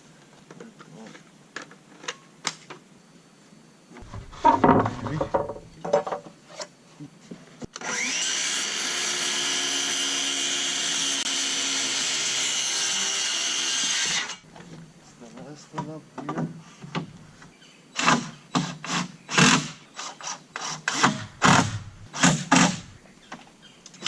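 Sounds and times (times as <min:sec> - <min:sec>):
wood knocking and handling: 0:04.0 - 0:06.4
power tool running on wood: 0:07.8 - 0:14.4.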